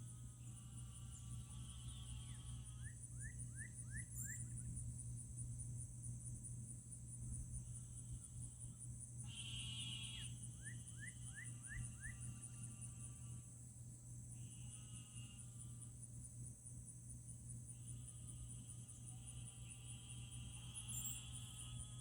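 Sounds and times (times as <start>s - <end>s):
high-pitched insect chorus: 0.0s - 22.0s
low steady hum: 0.0s - 22.0s.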